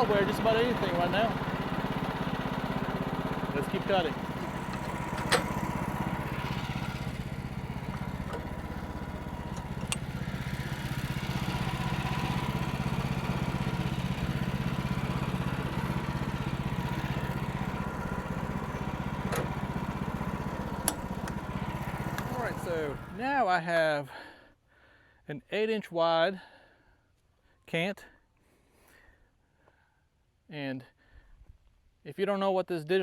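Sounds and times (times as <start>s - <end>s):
bandsaw mill sawing log: 0.0s - 23.3s
sharp clicks: 3.8s - 12.6s, 14.2s - 23.2s.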